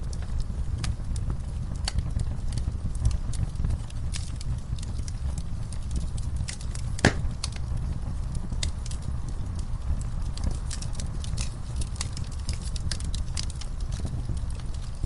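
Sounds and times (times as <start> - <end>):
wood fire crackling and popping: 0.0 - 15.0
low rumble: 6.7 - 11.2.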